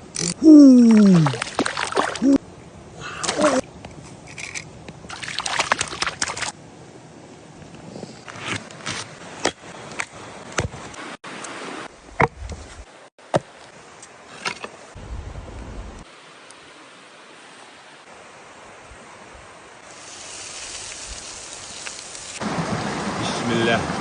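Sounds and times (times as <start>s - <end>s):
water splashing and sloshing: 0.8s - 2.4s, 3.1s - 6.7s, 16.0s - 24.0s.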